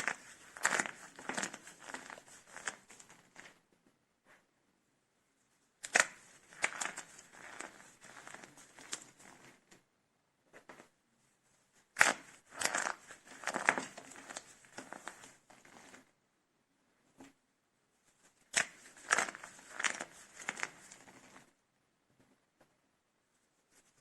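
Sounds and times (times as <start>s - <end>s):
dried soap crunching and crackling: 0.0s - 3.6s, 5.8s - 9.6s, 12.0s - 16.0s, 18.5s - 21.5s.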